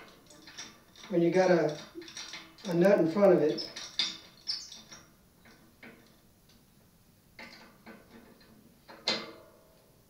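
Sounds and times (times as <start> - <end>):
metal tools clicking on wheel hub: 0.0 - 6.0.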